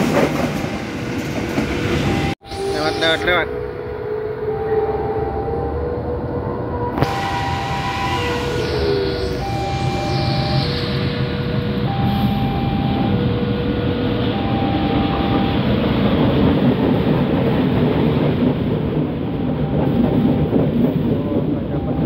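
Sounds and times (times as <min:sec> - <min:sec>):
diesel locomotive passing: 0:00.0 - 0:22.0
level crossing two-tone alarm: 0:07.0 - 0:13.2, 0:14.3 - 0:15.7.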